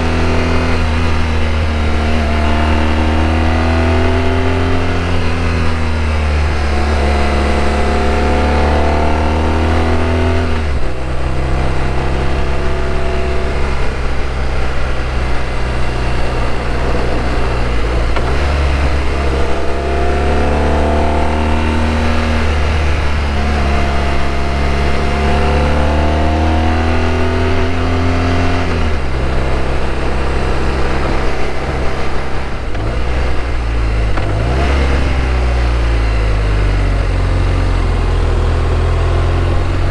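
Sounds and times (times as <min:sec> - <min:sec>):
motorcycle engine accelerating: 0:00.0 - 0:39.9
wind rush: 0:08.9 - 0:35.7.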